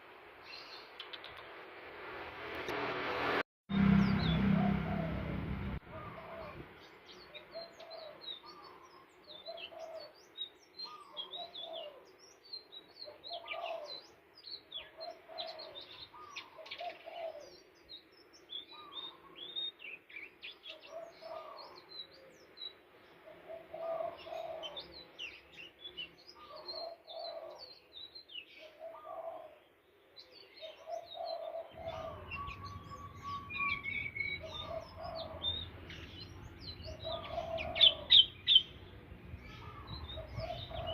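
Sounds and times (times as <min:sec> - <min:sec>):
low hum: 0:01.4 - 0:06.8, 0:31.7 - 0:40.9
lower rising bird phrase: 0:03.7 - 0:06.7, 0:31.8 - 0:40.9
high twittering bird chirps: 0:30.6 - 0:40.9.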